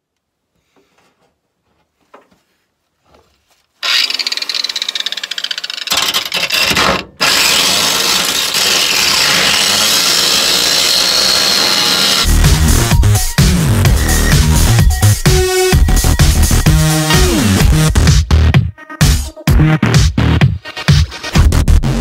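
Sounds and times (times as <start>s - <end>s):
power grinder grinding metal: 3.8s - 12.6s.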